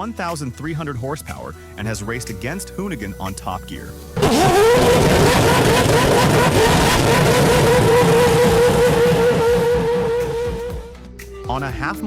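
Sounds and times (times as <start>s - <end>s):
rotary engine running hard: 4.2s - 11.0s.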